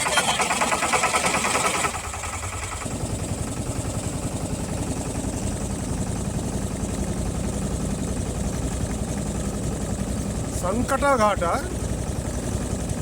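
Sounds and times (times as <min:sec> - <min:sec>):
small boat engine thrumming: 0:00.0 - 0:13.0.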